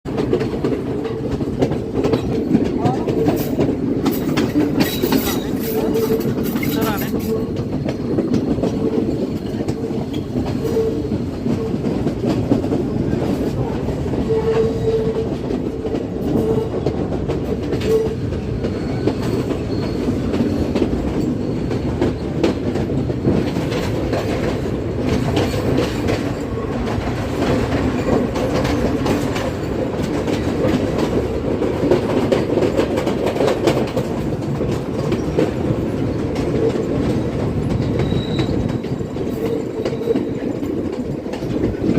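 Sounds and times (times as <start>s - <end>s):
clickety-clack over rail joints: 0.0s - 41.9s
train wheels rumbling on rails: 0.0s - 41.9s.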